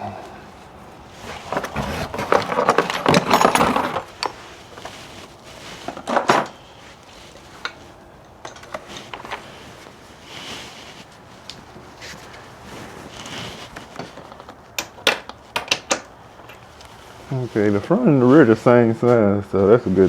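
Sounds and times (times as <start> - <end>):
metal tools clinking: 1.2 - 5.0, 14.2 - 16.7.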